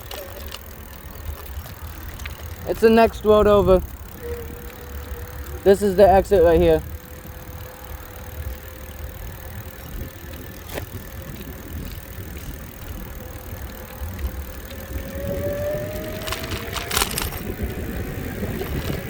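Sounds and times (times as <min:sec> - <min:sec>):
bicycle tyre road noise: 0:00.0 - 0:19.0
wind rumbling on microphone: 0:00.0 - 0:19.0
rattling clicks: 0:08.0 - 0:17.6
faint rising whine: 0:11.1 - 0:19.0.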